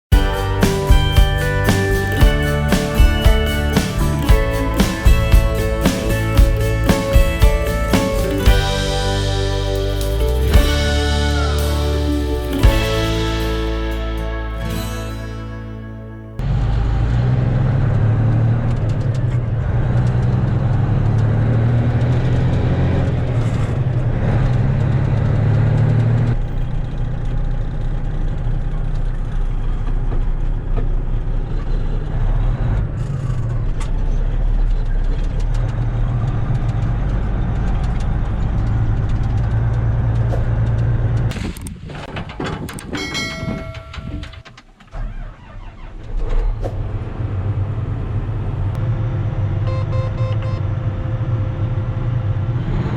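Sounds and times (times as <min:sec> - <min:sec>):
diesel machinery rumbling: 0:00.0 - 0:41.4, 0:44.9 - 0:52.9
steady tones: 0:00.1 - 0:16.4.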